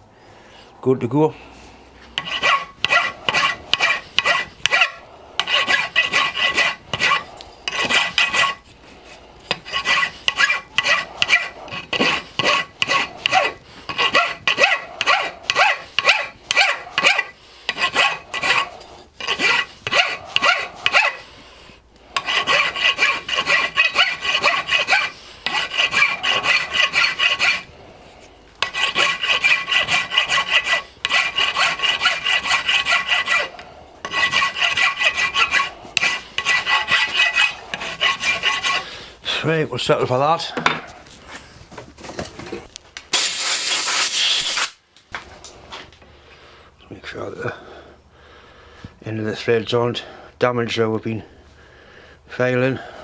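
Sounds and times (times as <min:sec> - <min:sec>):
hand file rasping on metal: 0:02.0 - 0:21.3, 0:22.1 - 0:39.0.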